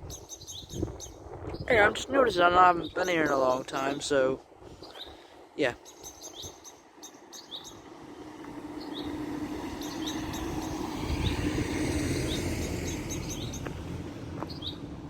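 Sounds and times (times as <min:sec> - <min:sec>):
small birds chirping: 0:00.0 - 0:14.9
vehicle passing by: 0:07.4 - 0:15.0.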